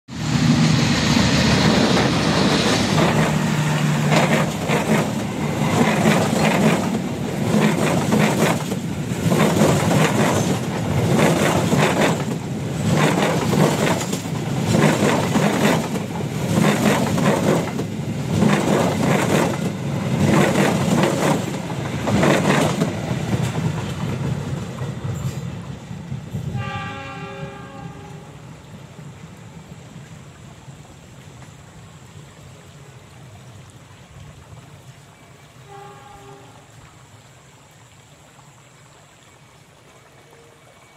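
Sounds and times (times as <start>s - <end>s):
train passing: 0.1s - 33.4s
train wheels clickety-clack: 1.0s - 26.6s
train horn blast: 3.0s - 4.1s, 26.4s - 28.5s, 35.4s - 36.8s.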